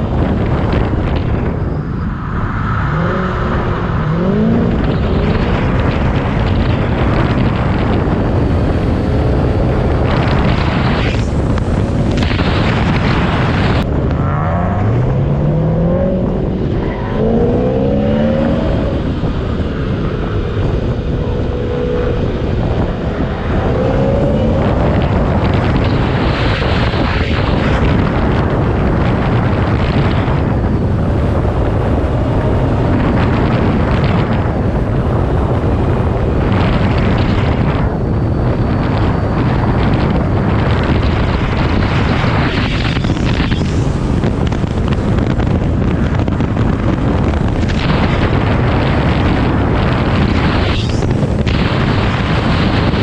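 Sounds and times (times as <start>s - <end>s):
heavy rushing noise: 0.0s - 53.0s
race car engine revving: 2.6s - 37.7s.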